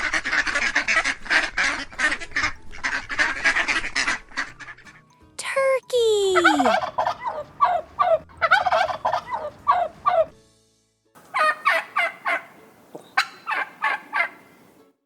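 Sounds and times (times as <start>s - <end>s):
turkey gobbling: 0.0s - 5.0s, 6.4s - 10.4s, 11.2s - 14.8s.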